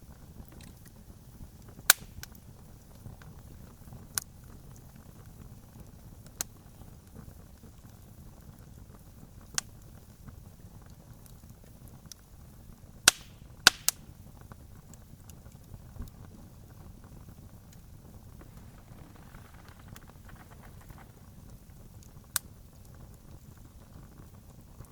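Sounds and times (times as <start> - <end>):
campfire crackling: 10.8 - 24.6.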